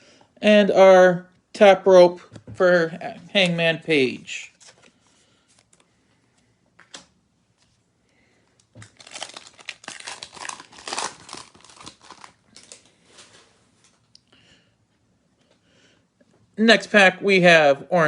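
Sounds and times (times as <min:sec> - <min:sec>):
wrapper crinkling and ripping: 0:08.7 - 0:13.5.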